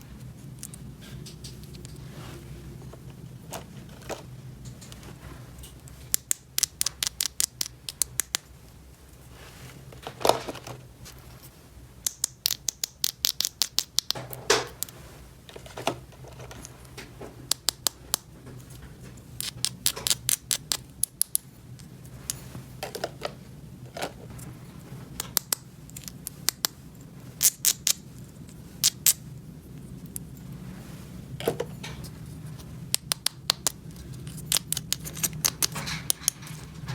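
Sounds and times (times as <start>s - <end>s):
plastic toy pieces clicking: 6.1s - 8.4s, 12.0s - 14.2s, 19.4s - 21.4s, 32.9s - 36.4s
plastic pieces scraping: 9.9s - 10.9s.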